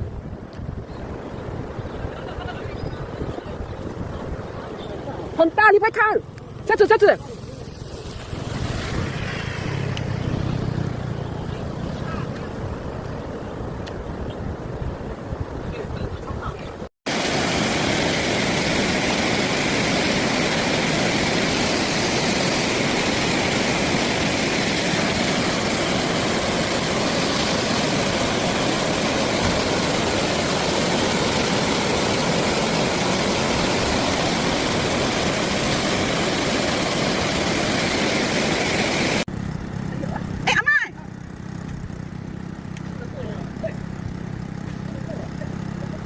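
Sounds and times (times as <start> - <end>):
floodwater rushing: 3.0 - 14.2, 17.1 - 39.3.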